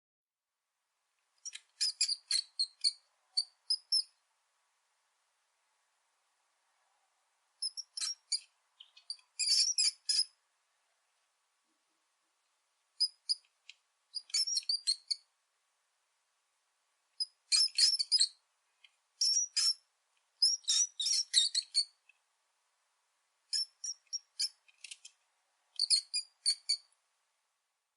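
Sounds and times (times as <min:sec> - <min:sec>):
rat squeaking: 0:01.4 - 0:04.2, 0:07.6 - 0:10.4, 0:13.0 - 0:13.5, 0:14.1 - 0:15.3, 0:17.2 - 0:18.4, 0:19.2 - 0:22.0, 0:23.5 - 0:25.1, 0:25.8 - 0:26.9.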